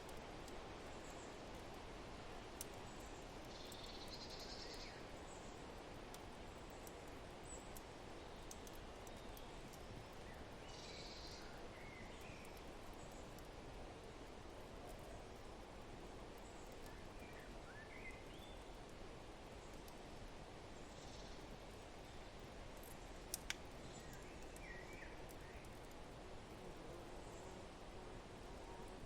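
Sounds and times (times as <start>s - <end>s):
wood fire crackling and popping: 2.5s - 4.2s, 5.5s - 10.6s, 21.7s - 26.6s.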